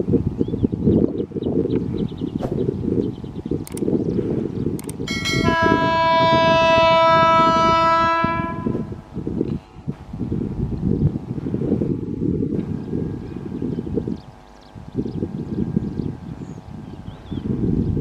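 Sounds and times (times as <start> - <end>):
locomotive air horn: 5.1 - 9.1.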